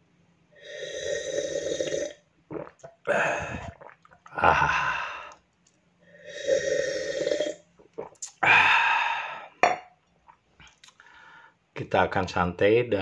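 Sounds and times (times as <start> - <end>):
person slurping coffee: 0.6 - 4.1, 6.2 - 8.5
breathy exhales: 3.1 - 3.8, 4.4 - 5.4, 8.4 - 9.6.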